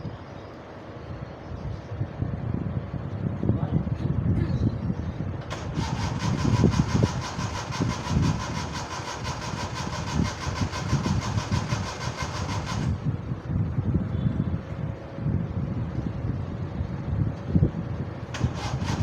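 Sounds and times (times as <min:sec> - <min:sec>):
starter motor cranking engine: 0:05.4 - 0:13.2, 0:18.3 - 0:19.0.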